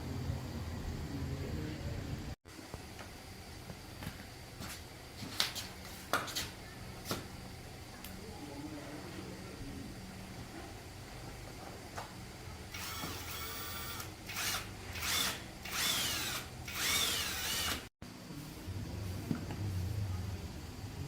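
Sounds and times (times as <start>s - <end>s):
handheld power tool running: 12.7s - 17.9s.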